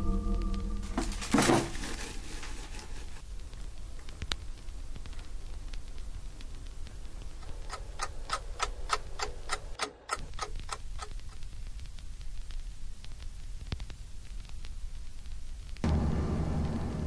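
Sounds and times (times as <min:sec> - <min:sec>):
steady low hum: 0:00.0 - 0:13.4
clock ticking fast: 0:07.4 - 0:11.4.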